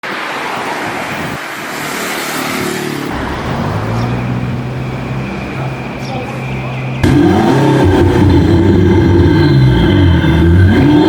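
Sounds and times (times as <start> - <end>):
loud rushing noise: 0.0 - 6.0
car engine running: 3.2 - 9.3.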